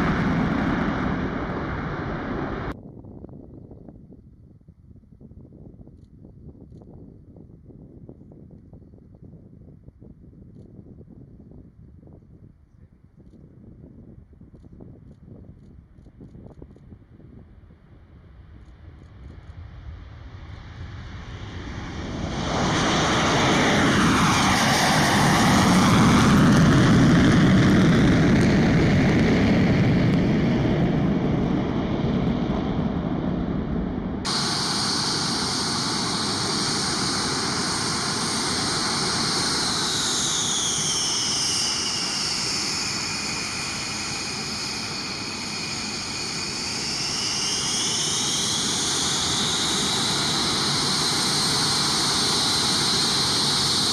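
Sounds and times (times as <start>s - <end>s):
jet engines passing: 0.0s - 2.8s, 18.2s - 53.9s.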